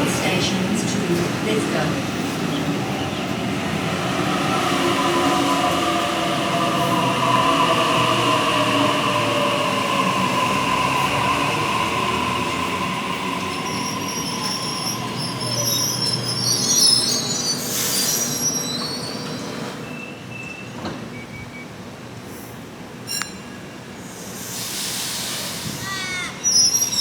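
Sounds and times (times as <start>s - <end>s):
electric train whine: 0.0s - 20.4s
brake and wheel squeals: 13.4s - 21.8s, 23.1s - 27.0s
air hiss: 24.1s - 26.0s.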